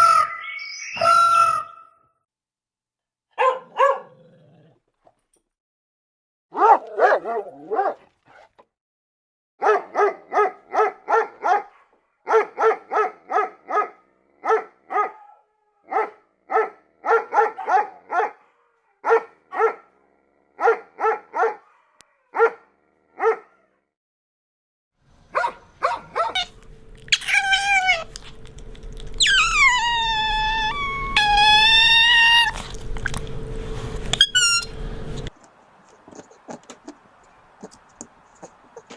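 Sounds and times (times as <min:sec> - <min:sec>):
high falling cries: 0:00.0 - 0:02.1, 0:27.1 - 0:28.2, 0:29.2 - 0:32.8
dog barking: 0:03.3 - 0:04.2, 0:06.5 - 0:08.5, 0:09.6 - 0:23.8, 0:25.3 - 0:26.6.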